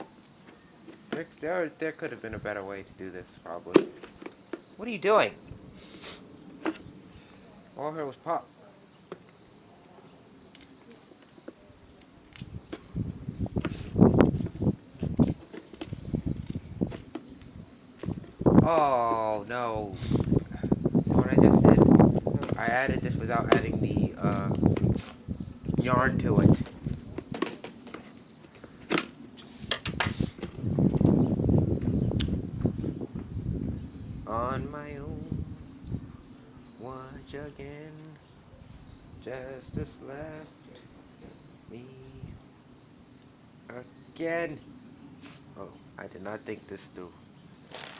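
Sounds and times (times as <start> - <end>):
crickets chirping: 0.0 - 47.9
rustling and scuffing: 10.8 - 18.5, 26.4 - 31.1.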